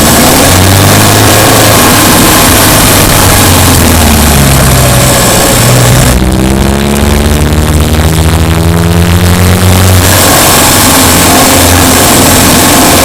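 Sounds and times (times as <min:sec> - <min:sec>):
car engine revving: 0:00.0 - 0:13.0
hiss: 0:10.0 - 0:13.0.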